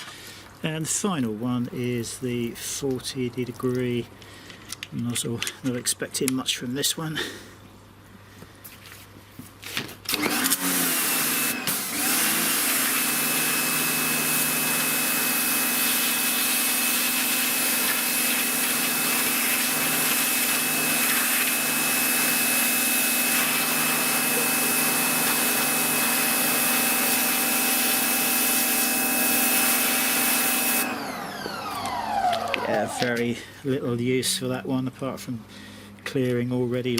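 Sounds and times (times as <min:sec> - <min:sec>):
pressure washer motor whine: 0:10.1 - 0:33.5
water hissing from nozzle: 0:10.8 - 0:30.9.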